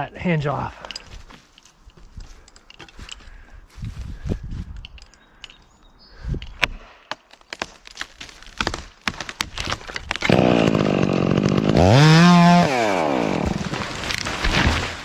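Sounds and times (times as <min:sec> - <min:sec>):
chainsaw revving: 0:10.2 - 0:14.4.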